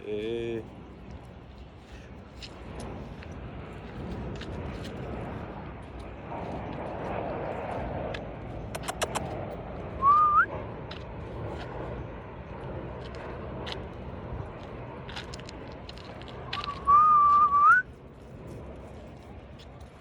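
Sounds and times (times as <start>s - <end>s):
sharp clicks: 8.8s - 9.4s
person whistling: 10.0s - 10.5s, 16.6s - 17.8s.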